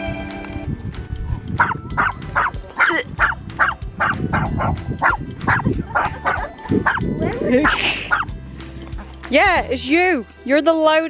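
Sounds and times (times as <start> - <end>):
small dog yapping: 1.6 - 8.3.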